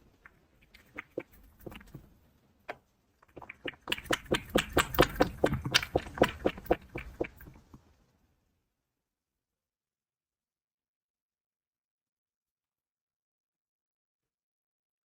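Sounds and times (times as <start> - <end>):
cat wet mouth sounds: 3.3 - 7.6.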